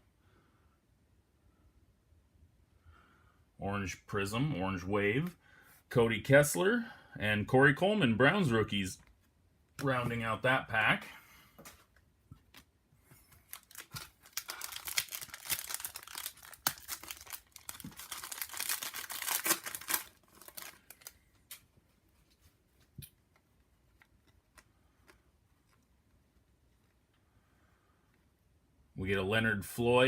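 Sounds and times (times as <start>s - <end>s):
foil wrapper tearing and crinkling: 13.4s - 21.6s.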